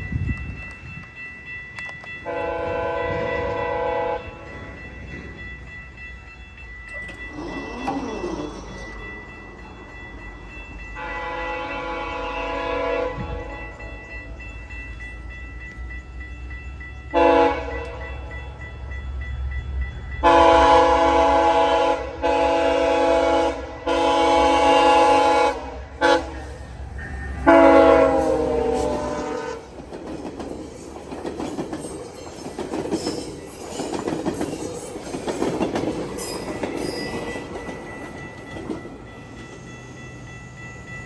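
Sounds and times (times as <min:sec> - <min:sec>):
train rumbling: 0:00.0 - 0:41.0
locomotive air horn blasts: 0:02.2 - 0:04.3, 0:11.0 - 0:13.6, 0:17.1 - 0:18.0, 0:20.2 - 0:26.5, 0:27.4 - 0:29.7
level-crossing bell ringing: 0:04.2 - 0:12.0, 0:25.9 - 0:41.0.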